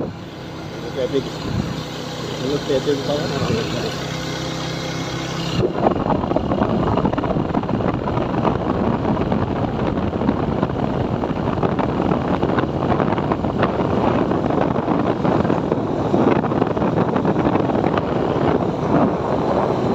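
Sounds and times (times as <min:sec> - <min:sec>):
motorcycle engine hum: 0:00.0 - 0:19.9
wind buffeting microphone: 0:00.0 - 0:19.9.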